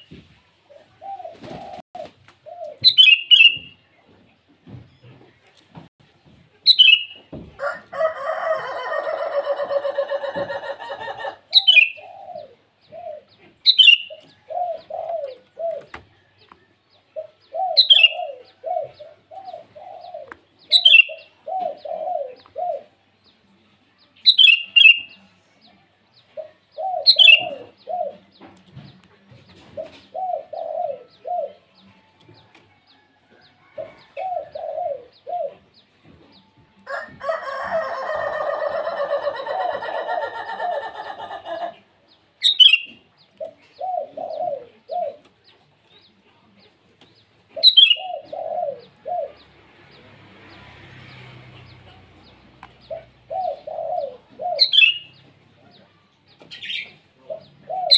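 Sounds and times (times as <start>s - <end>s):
low cooing notes: 26.4s - 28.3s, 29.8s - 31.9s, 43.4s - 45.2s, 52.8s - 56.0s.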